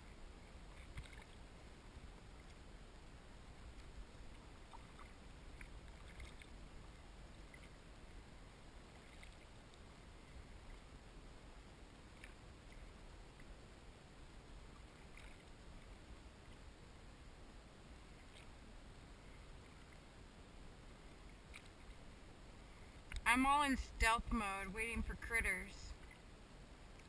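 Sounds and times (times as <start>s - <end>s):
low water hiss: 0.0s - 27.0s
water drips and splashes: 0.7s - 1.4s, 3.7s - 7.8s.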